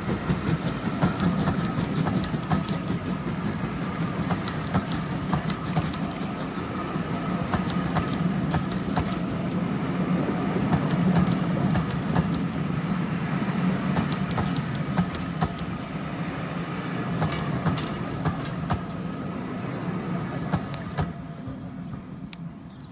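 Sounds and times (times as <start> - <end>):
wheels clicking over rail joints: 0.0 - 9.7, 10.7 - 12.6, 13.9 - 16.0, 20.3 - 22.9
train wheel rumble: 0.0 - 22.9.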